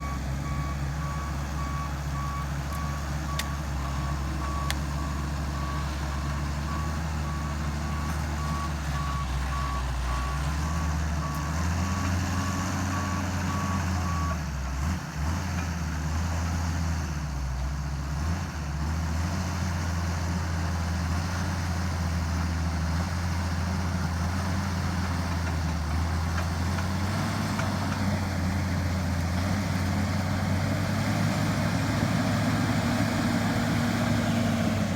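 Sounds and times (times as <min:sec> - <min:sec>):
reversing alarm beeping: 0:00.0 - 0:14.4
diesel engine running under load: 0:00.0 - 0:34.9.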